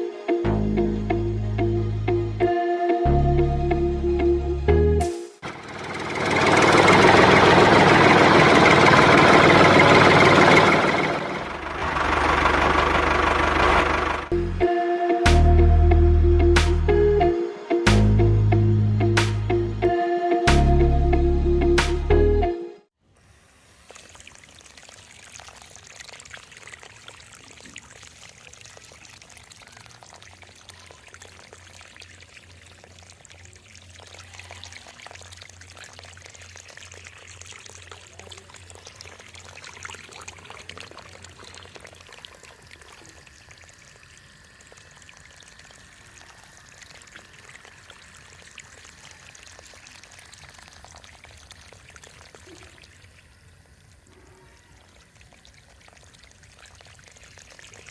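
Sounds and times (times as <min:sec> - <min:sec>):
water pouring and splashing: 0:23.1 - 0:57.9.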